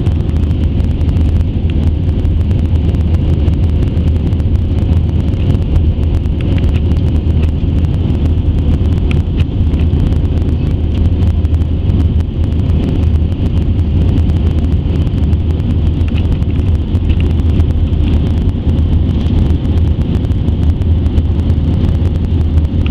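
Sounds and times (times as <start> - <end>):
faint steady whine: 0.0 - 22.9
jet engines rumbling in cabin: 0.0 - 22.9.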